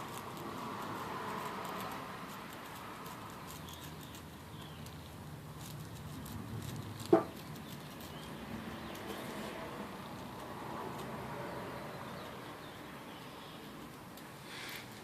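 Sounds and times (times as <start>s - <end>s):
pen scratching on cork: 5.5s - 8.1s.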